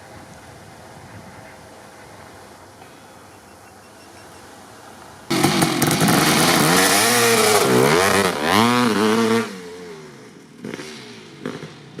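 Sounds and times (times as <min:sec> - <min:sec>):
two-stroke engine revving: 0:05.3 - 0:12.0.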